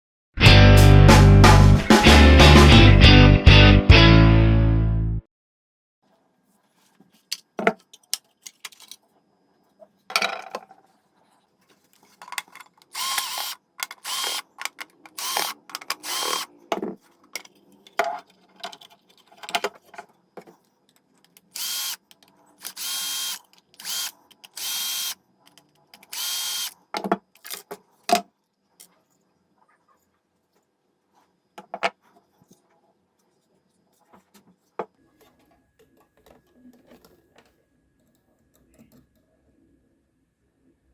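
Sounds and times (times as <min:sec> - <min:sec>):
power drill running in bursts: 0:13.0 - 0:14.4, 0:15.2 - 0:16.5, 0:21.6 - 0:22.0, 0:22.7 - 0:25.2, 0:26.1 - 0:26.7.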